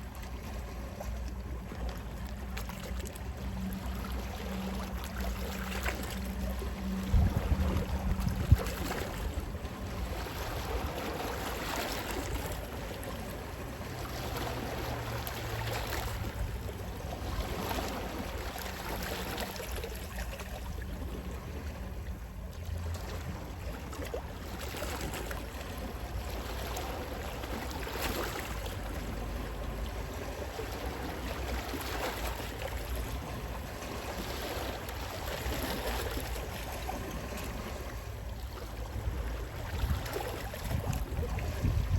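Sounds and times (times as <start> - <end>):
sea waves washing: 0.0 - 41.9
sea wind rumble: 0.0 - 41.9.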